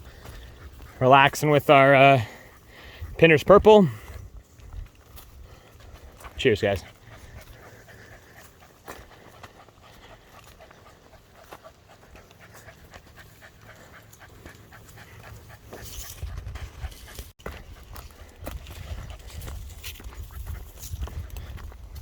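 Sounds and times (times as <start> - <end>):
dog panting: 0.0 - 22.0.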